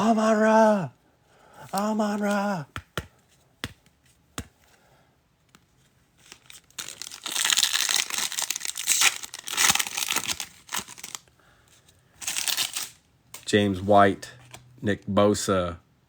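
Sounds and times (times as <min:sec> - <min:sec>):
foil pack tearing and crinkling: 0:06.2 - 0:11.3, 0:12.2 - 0:13.0.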